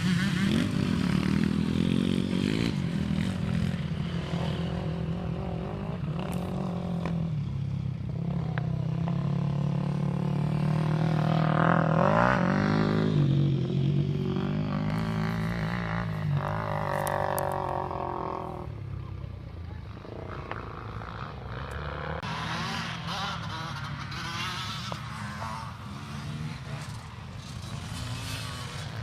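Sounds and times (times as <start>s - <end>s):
motocross bike engines revving: 0.0s - 29.0s.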